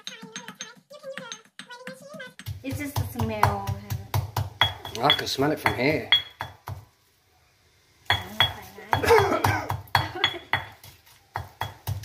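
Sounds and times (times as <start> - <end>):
metal utensils clinking against bowl: 4.6 - 6.4.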